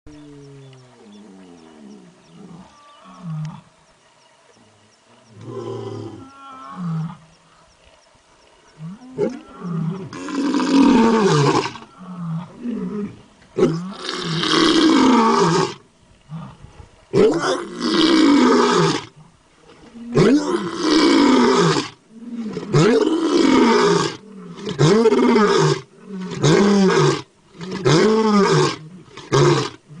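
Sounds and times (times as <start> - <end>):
tiger roaring: 8.9 - 19.1, 19.9 - 30.0.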